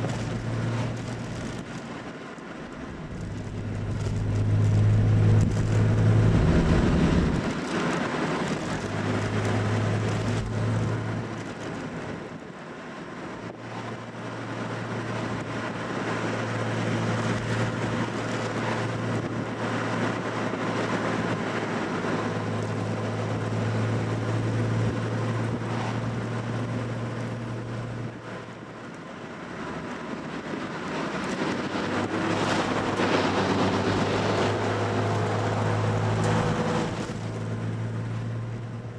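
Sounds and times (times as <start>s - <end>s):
car engine droning: 0.0s - 38.9s
road and wind noise: 0.0s - 38.9s.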